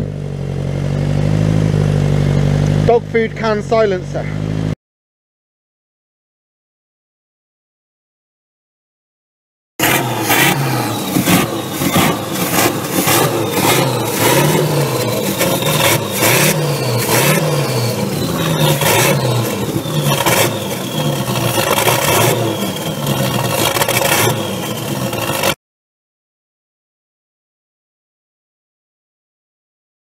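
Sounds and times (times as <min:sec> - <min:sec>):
car engine revving through loud exhaust: 0:00.0 - 0:04.8, 0:09.8 - 0:25.6.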